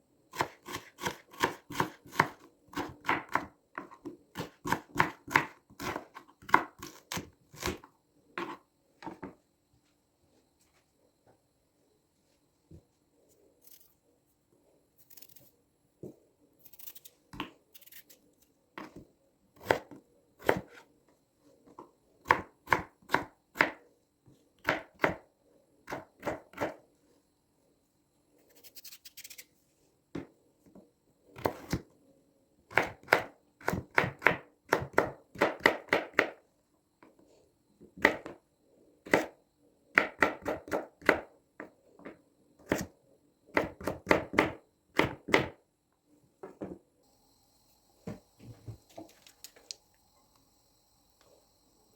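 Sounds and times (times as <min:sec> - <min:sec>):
knife chopping vegetables: 0:00.3 - 0:08.6, 0:19.6 - 0:20.8, 0:22.2 - 0:23.8, 0:24.6 - 0:25.2, 0:31.4 - 0:31.8, 0:32.7 - 0:36.4, 0:39.9 - 0:41.7, 0:43.5 - 0:45.6.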